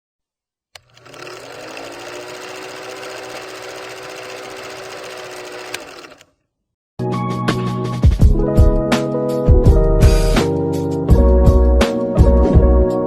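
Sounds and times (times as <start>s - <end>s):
click: 0.7s - 1.0s
mechanical whirring with rattle: 0.8s - 6.3s.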